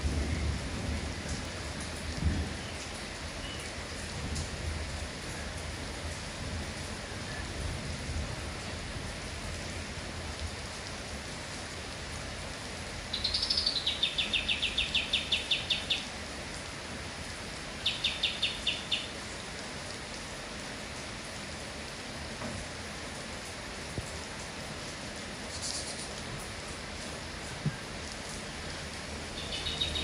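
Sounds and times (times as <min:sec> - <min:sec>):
steady rain: 0:00.0 - 0:30.0
bird whistle and rattling trill: 0:13.1 - 0:16.0, 0:29.4 - 0:30.0.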